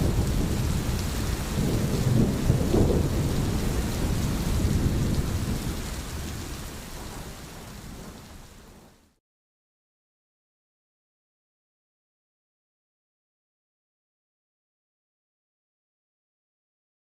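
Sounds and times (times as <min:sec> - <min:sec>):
low thunder rumbling: 0:00.0 - 0:09.0
heavy rain: 0:00.0 - 0:09.2.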